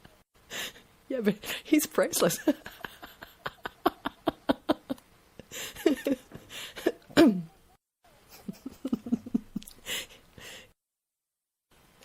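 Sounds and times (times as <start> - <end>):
woman laughing: 2.2 - 7.5, 8.2 - 10.6
gasping breaths: 6.4 - 6.9, 9.8 - 10.8.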